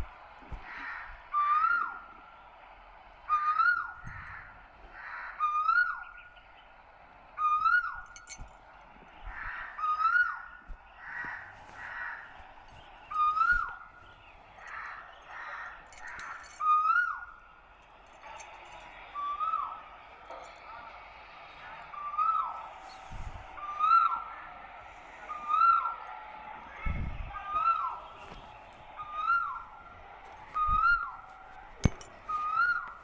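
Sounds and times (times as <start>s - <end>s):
whistled bird call: 3.3s - 4.0s, 5.4s - 6.4s, 7.4s - 8.1s, 13.0s - 14.3s, 16.6s - 17.4s, 19.0s - 20.0s, 21.6s - 24.4s, 25.1s - 26.1s, 26.9s - 29.8s, 30.4s - 31.3s, 32.3s - 33.0s
rasping bird calls: 32.3s - 33.0s.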